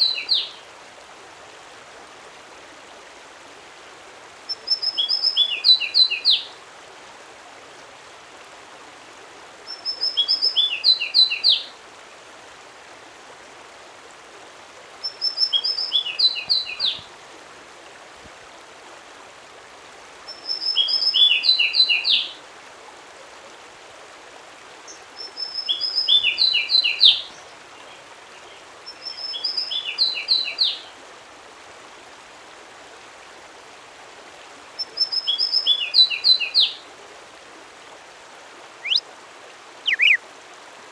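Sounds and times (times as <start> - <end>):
songbird singing: 0.0 - 0.5, 15.0 - 17.1, 24.9 - 30.9, 34.8 - 36.8, 38.8 - 39.0, 39.8 - 40.2
background hiss: 23.6 - 40.9.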